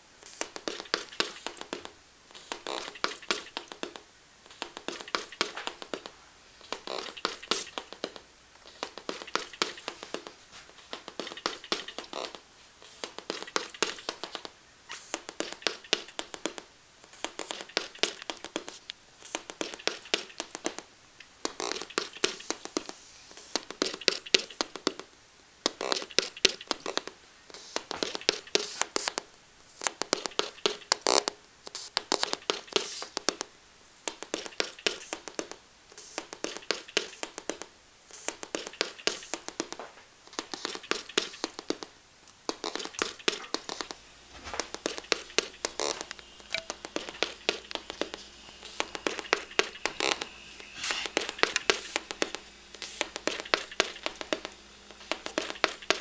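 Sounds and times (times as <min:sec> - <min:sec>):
rapid crackling clicking from loudspeakers: 0:00.2 - 0:12.4, 0:13.0 - 0:25.0, 0:36.2 - 0:56.0.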